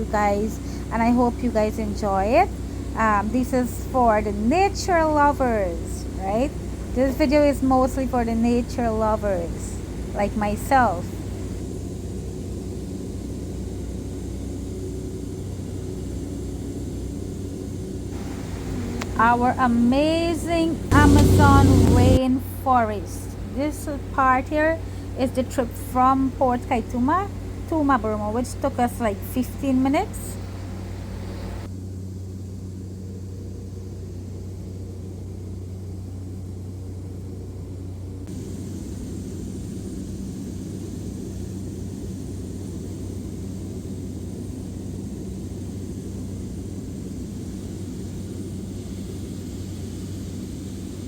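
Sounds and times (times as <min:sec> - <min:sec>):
propeller airplane droning: 0:00.0 - 0:51.0
hiss: 0:08.7 - 0:19.4, 0:38.3 - 0:51.0.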